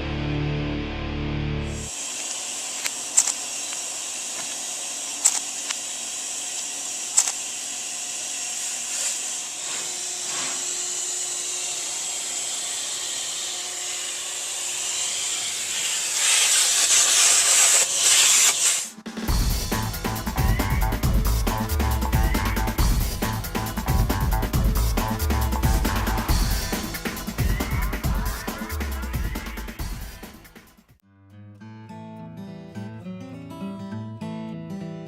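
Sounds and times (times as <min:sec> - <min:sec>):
music: 0:00.0 - 0:01.8, 0:19.0 - 0:35.0
sharp clicks: 0:02.2 - 0:04.6, 0:05.2 - 0:05.8, 0:07.1 - 0:07.5.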